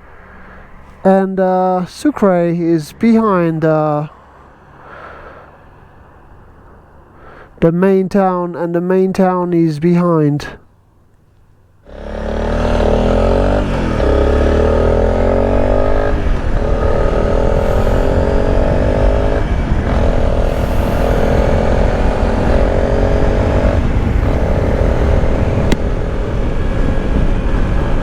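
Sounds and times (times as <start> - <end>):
motorcycle engine running: 11.8 - 28.0.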